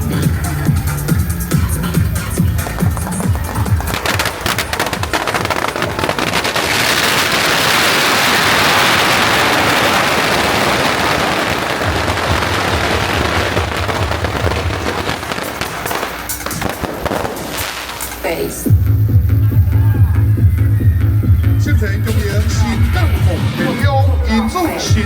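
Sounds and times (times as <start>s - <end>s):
music beat: 0.0s - 6.6s, 12.0s - 25.0s
firecrackers crackling: 0.0s - 25.0s.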